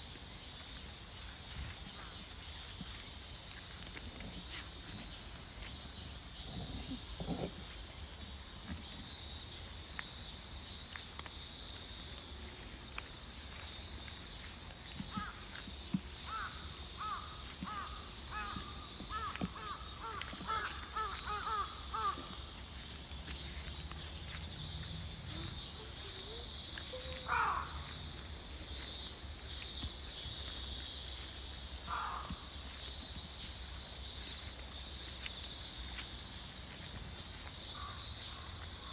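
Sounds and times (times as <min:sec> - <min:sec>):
insects chirring: 0:00.0 - 0:38.9
crows cawing: 0:15.1 - 0:15.4, 0:16.2 - 0:22.5, 0:27.0 - 0:28.0, 0:31.9 - 0:32.6, 0:37.7 - 0:38.9.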